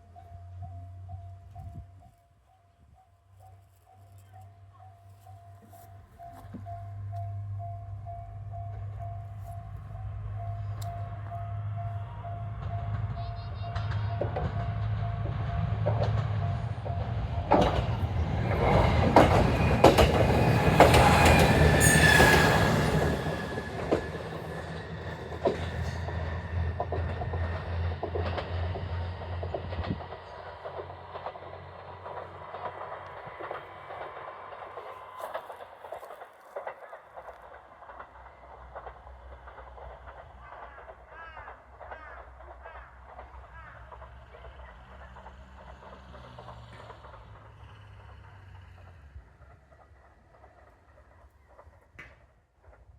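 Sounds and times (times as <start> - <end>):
wheels clicking over rail joints: 3.4 - 52.9
high wheel squeal: 18.6 - 27.7.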